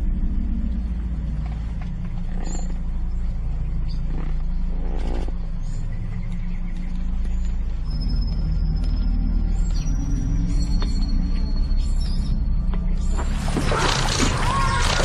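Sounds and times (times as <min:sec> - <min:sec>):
low steady rumble: 0:00.0 - 0:14.6.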